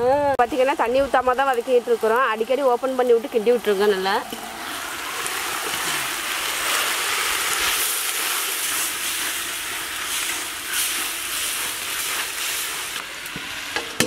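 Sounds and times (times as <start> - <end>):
vegetables sizzling in oil: 0.0 - 14.0
ladle stirring in pan: 4.3 - 14.0.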